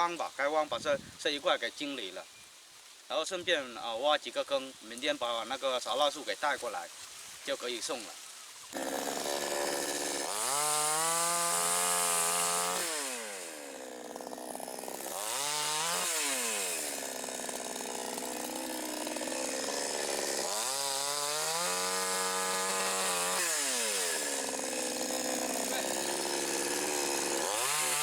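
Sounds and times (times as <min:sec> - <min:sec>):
chainsaw engine revving: 0:08.7 - 0:28.0.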